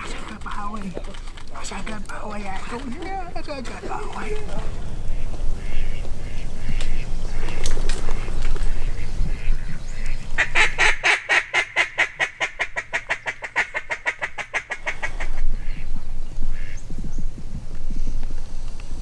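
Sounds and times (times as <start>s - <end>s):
rustling: 0.0s - 9.1s
duck quacking rapidly: 3.8s - 15.9s.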